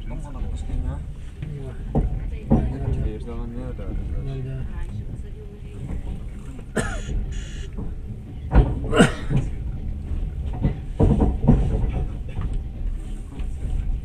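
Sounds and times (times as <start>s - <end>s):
train wheels rumbling on track: 0.0s - 14.0s
sharp knocks and clatters: 1.9s - 3.2s, 5.0s - 14.0s.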